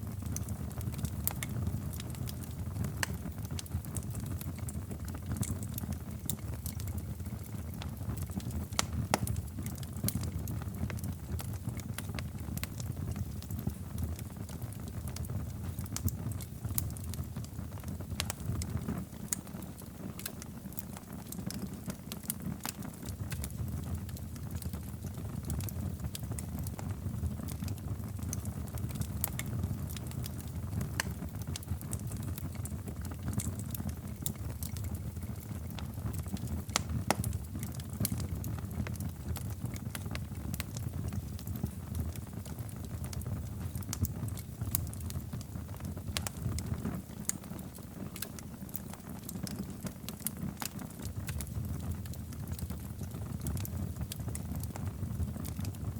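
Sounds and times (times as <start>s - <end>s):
fire crackles and pops: 0.0s - 55.9s
fire flames rumbling: 0.0s - 55.9s.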